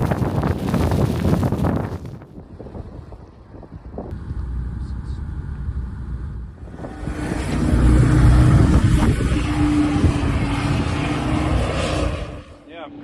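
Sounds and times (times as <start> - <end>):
loud rushing noise: 6.2 - 12.6.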